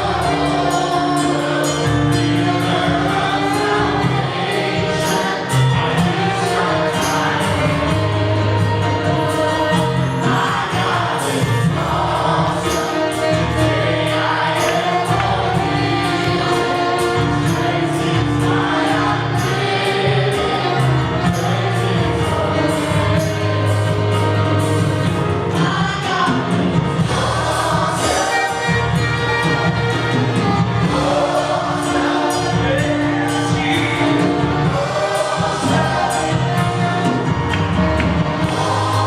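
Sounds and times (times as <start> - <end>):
band with bass and drums: 0.0 - 39.0
choir singing: 0.0 - 39.0.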